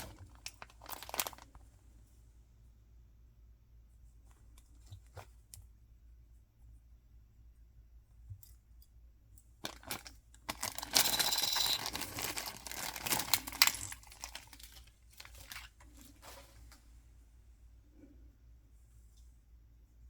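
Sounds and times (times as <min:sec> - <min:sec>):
packaging tearing and rustling: 0:00.0 - 0:01.6, 0:09.6 - 0:16.2.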